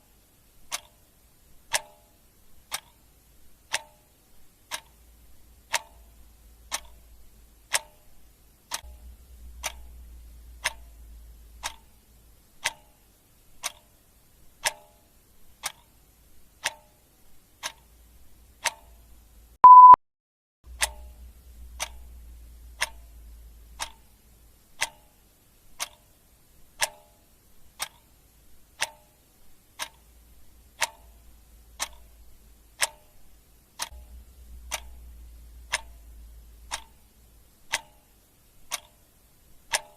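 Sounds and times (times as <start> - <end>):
clock ticking: 0.6 - 20.0, 20.7 - 39.9
short high beep: 19.6 - 20.0.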